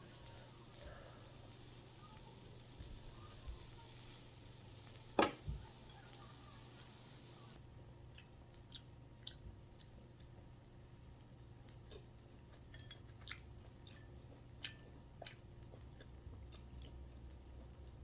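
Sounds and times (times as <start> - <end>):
food sizzling on a grill: 0.0 - 7.6.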